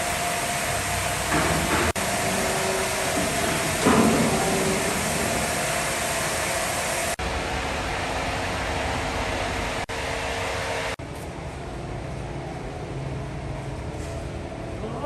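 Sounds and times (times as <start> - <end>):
motor hums: 0.0 - 11.0
woodworking machinery whirring: 0.0 - 11.0.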